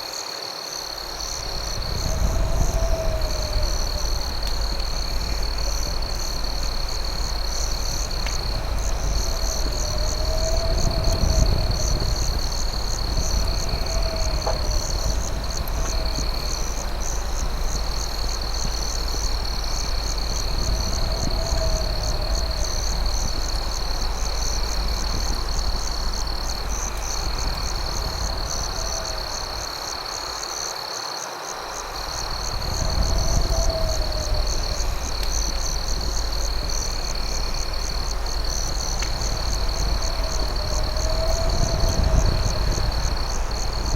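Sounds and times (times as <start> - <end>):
fast pulsing insect chirp: 0.0 - 30.7, 31.8 - 43.9
crickets trilling: 0.0 - 43.9
low rumble: 1.2 - 30.2, 32.0 - 43.9
faint campfire pops: 3.4 - 29.5, 34.4 - 40.5.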